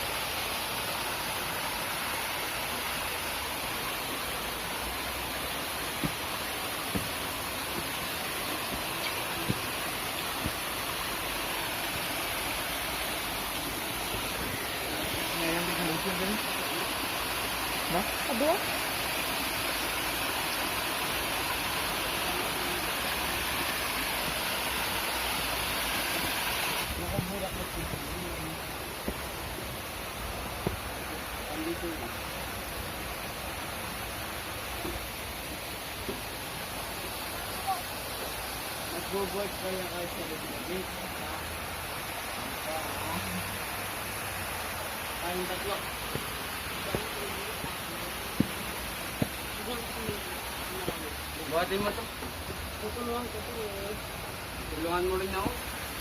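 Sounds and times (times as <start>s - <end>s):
stream rushing water: 0.0s - 56.0s
soft knocks: 6.9s - 7.9s.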